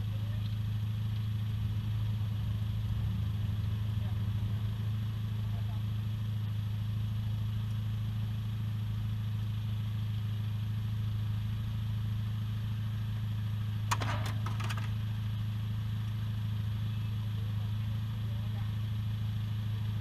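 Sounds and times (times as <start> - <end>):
motorcycle engine idling: 0.0 - 20.0
sharp cracks: 13.9 - 15.0.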